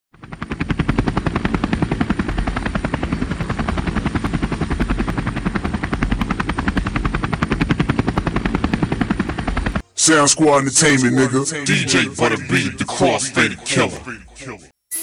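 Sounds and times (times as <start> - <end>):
rapid chopping pulse: 0.2 - 9.8.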